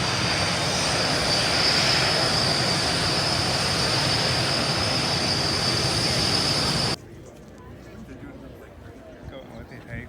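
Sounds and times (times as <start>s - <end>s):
jet engines roaring: 0.0s - 7.0s.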